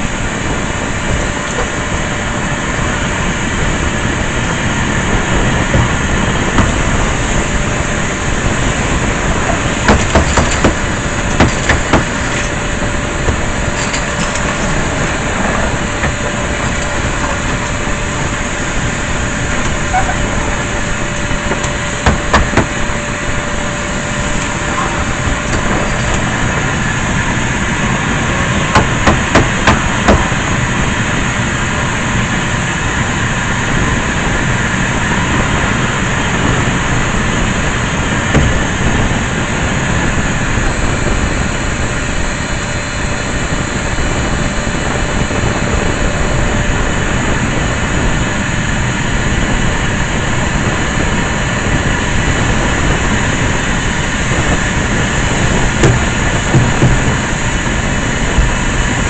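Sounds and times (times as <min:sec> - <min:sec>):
vacuum cleaner running: 0:00.0 - 0:59.0
sharp knocks: 0:09.5 - 0:12.5, 0:21.2 - 0:22.8, 0:28.5 - 0:30.4, 0:38.3 - 0:38.8, 0:55.8 - 0:57.3.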